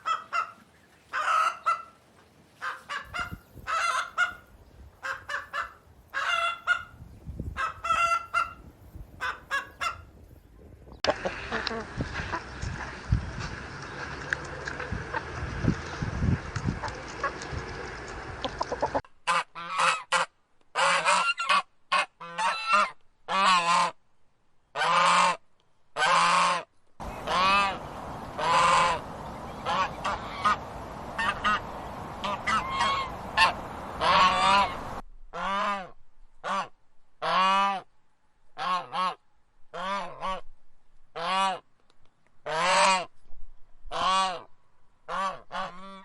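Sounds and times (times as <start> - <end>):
geese honking: 0.0 - 2.0, 2.6 - 7.0, 7.6 - 8.6, 16.6 - 23.9, 26.0 - 35.8, 42.5 - 43.0
noisy sound: 27.0 - 35.0.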